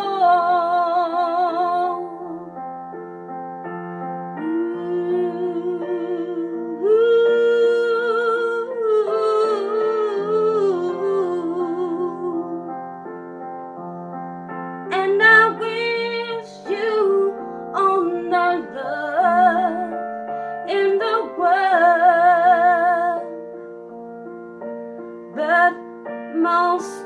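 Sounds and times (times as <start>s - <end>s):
woman singing with vibrato: 0.0s - 2.5s, 4.4s - 12.7s, 14.9s - 23.4s, 25.4s - 27.0s
electric piano chords: 0.0s - 27.0s.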